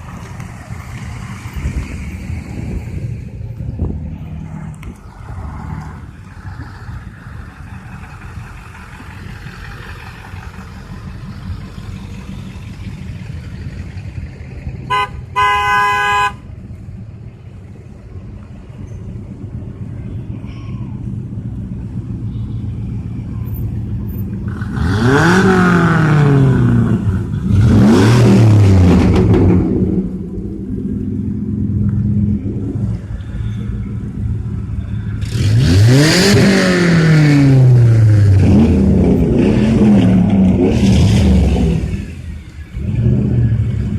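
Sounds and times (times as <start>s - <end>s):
truck engines running: 0.0s - 43.9s
vehicle horn honking: 14.9s - 16.4s.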